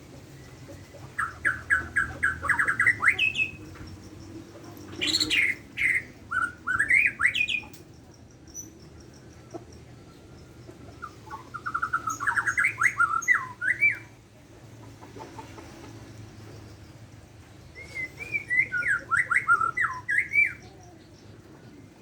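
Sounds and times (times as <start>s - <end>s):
songbird whistling: 1.1s - 3.9s, 5.0s - 7.8s, 11.0s - 14.2s, 17.7s - 21.0s.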